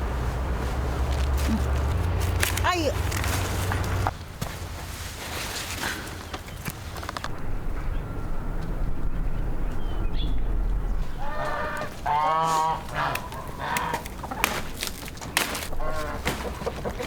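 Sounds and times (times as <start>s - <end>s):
chicken clucking: 15.9s - 17.0s.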